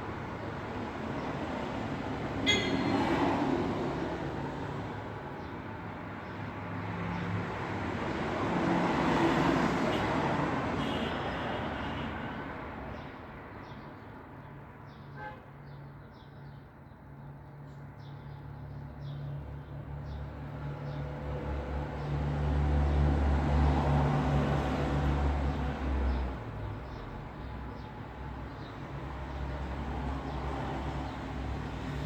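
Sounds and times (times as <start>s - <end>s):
vehicles passing by: 18.6s - 32.0s.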